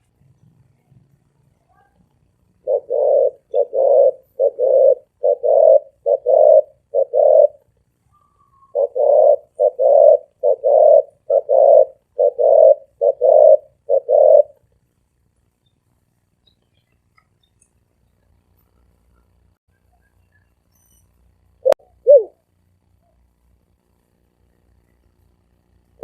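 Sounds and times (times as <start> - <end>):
dove cooing: 2.6 - 14.6, 21.6 - 22.4.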